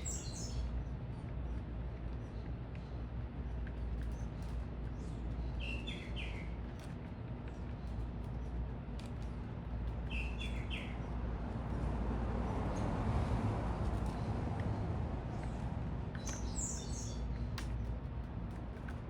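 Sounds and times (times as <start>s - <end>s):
small bird chirping: 0.0s - 0.9s, 3.8s - 6.9s, 9.2s - 11.2s, 16.1s - 17.9s
low rumble and hum: 0.0s - 19.0s.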